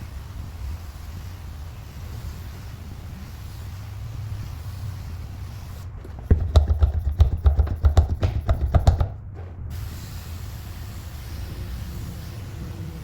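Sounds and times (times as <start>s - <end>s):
steady low hum: 3.2s - 11.8s
hands knocking and scrubbing: 6.0s - 9.3s.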